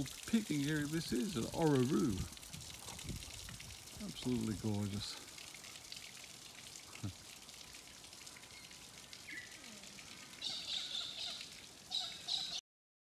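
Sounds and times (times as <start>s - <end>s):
faint outdoor hiss: 0.0s - 12.6s
birds chirping: 8.4s - 12.6s.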